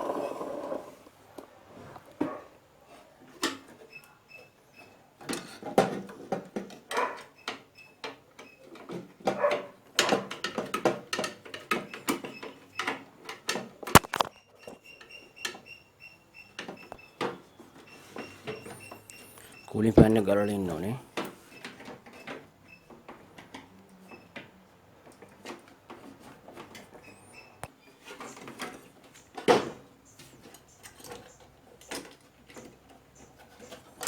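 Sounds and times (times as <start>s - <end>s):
tools knocking and scraping: 5.2s - 15.7s.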